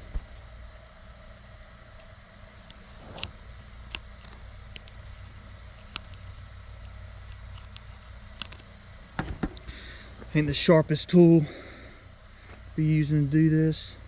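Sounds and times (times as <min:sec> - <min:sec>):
steady low hum: 0:00.0 - 0:14.0
small parts clicking: 0:03.8 - 0:08.7.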